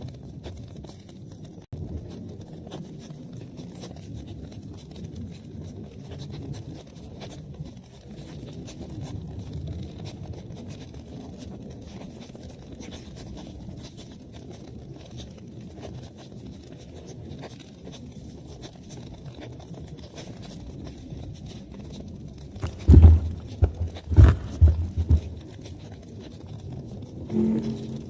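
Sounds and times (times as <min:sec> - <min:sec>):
loud low thumps: 0:22.6 - 0:25.4
wood fire crackling: 0:22.6 - 0:25.4.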